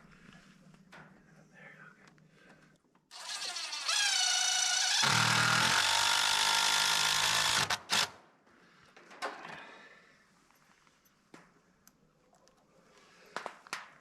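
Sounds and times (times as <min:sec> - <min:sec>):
cordless drill driving a screw: 0:03.1 - 0:08.2.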